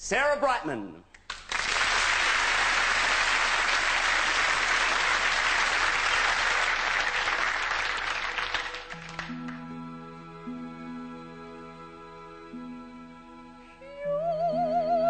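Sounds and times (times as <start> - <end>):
audience applauding: 1.2 - 9.6.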